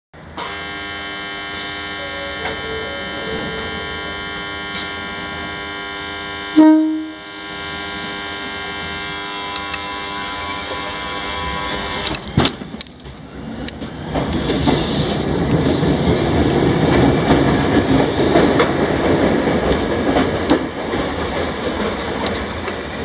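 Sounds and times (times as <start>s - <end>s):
electric train hum: 0.2s - 23.0s
train horn toot: 0.3s - 12.2s.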